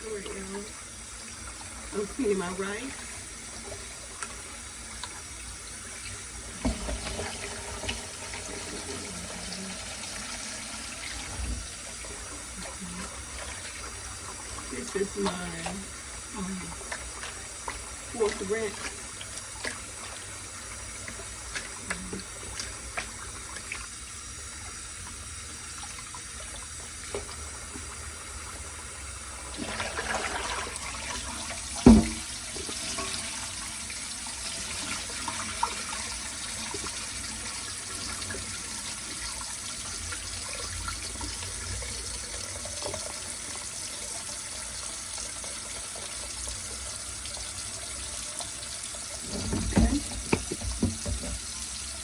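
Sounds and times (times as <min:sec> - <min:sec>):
rinse water swishing: 0:00.0 - 0:44.2, 0:44.8 - 0:52.0
tap running into sink: 0:06.0 - 0:10.2, 0:29.6 - 0:33.3, 0:49.1 - 0:51.7.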